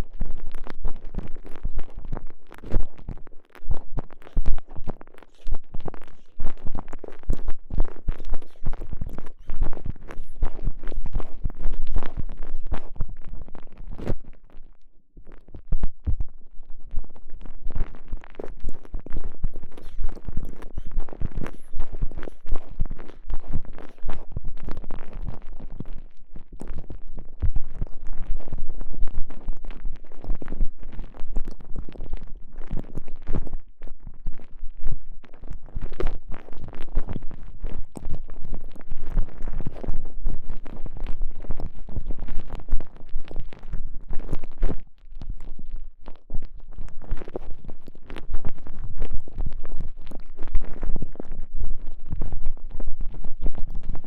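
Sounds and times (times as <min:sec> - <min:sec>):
elastic sleeve rubbing on microphone: 0:01.1 - 0:14.3, 0:18.4 - 0:25.9.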